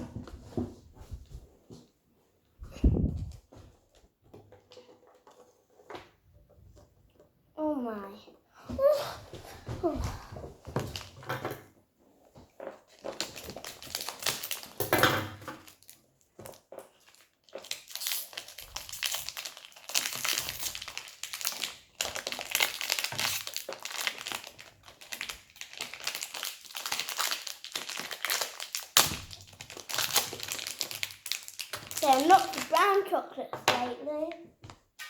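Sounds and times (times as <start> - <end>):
plastic packaging crinkling: 12.6 - 14.9, 15.6 - 33.2.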